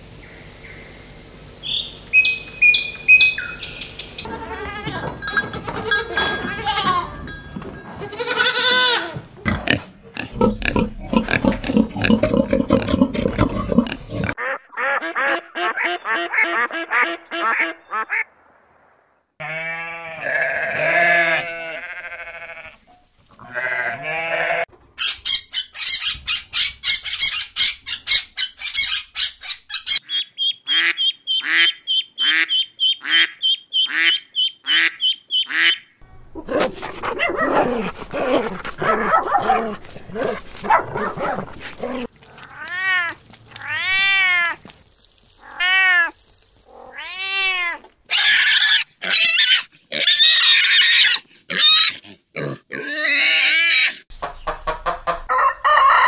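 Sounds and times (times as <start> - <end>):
ducklings peeping: 1.6 - 4.3, 29.3 - 35.9
high bird chirps: 1.6 - 4.3, 25.0 - 35.9
ducks quacking: 9.5 - 18.3, 30.7 - 35.8.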